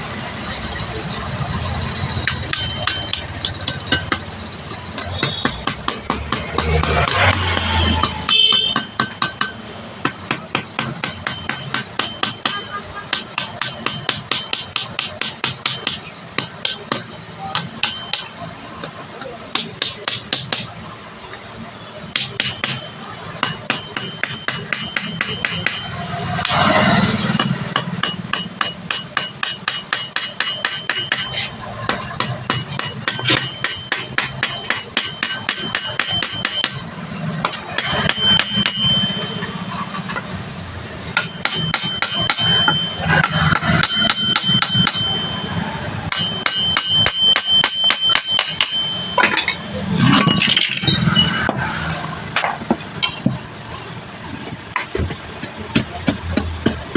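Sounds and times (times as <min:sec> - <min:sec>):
hammer striking metal: 0:01.8 - 0:20.8, 0:22.0 - 0:53.5.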